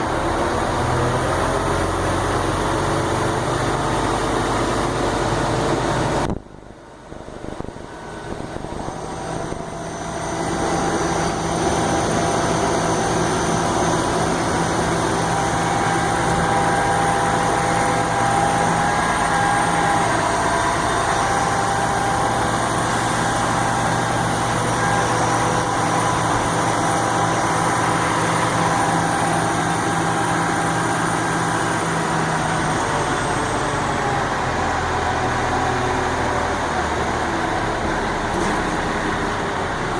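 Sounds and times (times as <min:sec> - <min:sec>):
large engine running: 0:00.0 - 0:39.9.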